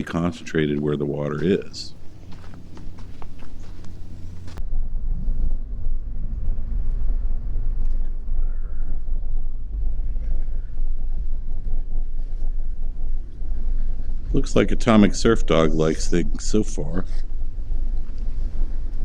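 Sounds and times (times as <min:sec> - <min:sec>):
car engine: 0:00.0 - 0:04.6
tyres rumbling on gravel: 0:00.0 - 0:04.6.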